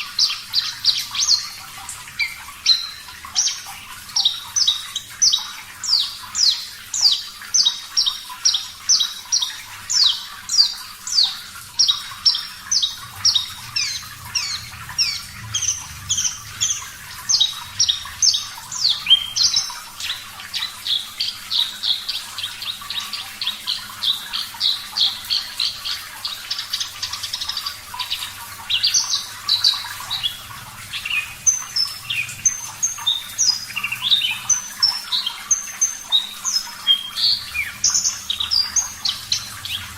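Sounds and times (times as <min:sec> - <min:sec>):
bush lark singing: 0:08.9 - 0:25.1.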